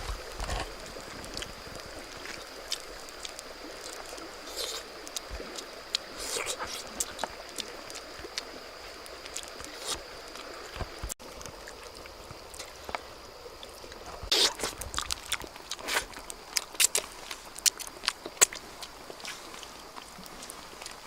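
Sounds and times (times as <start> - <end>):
sharp crunches and clicks: 14.2 - 19.4.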